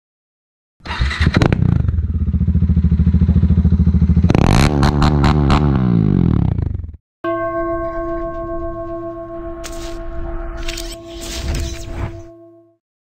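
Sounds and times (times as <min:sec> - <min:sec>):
motorcycle engine starting and revving: 0:00.8 - 0:07.0.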